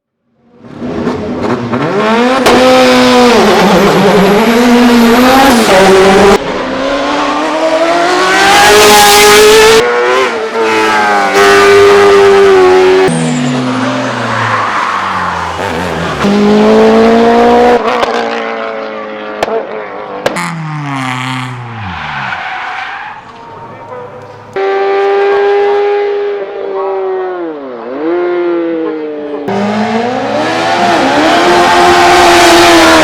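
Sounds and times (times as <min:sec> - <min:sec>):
racing car engines at full throttle: 0:00.4 - 0:33.0.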